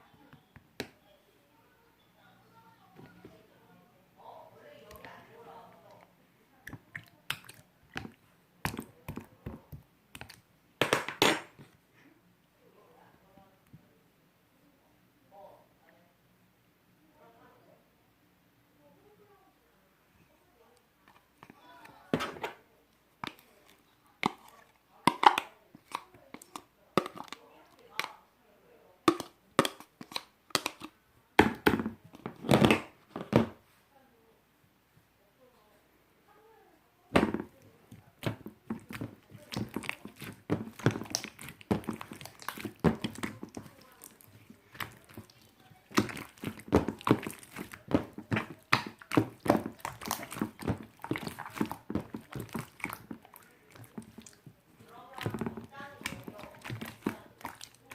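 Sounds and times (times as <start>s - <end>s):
slime squeezed by hand: 38.2s - 54.5s, 55.2s - 57.9s.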